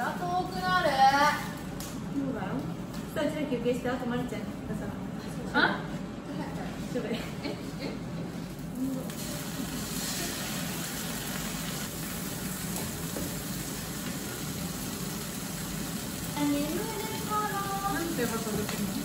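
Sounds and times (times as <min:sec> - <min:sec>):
food sizzling in hot oil: 0:08.8 - 0:19.0.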